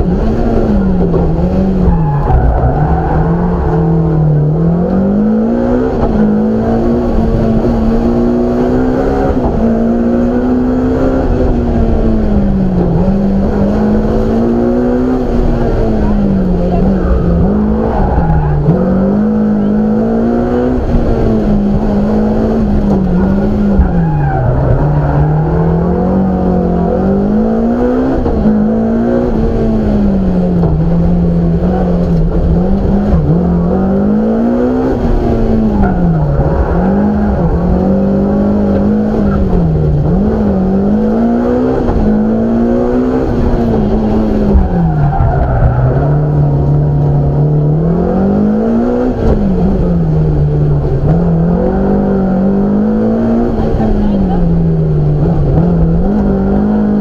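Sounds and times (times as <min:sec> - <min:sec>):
rally car engine revving: 0:00.0 - 0:57.0.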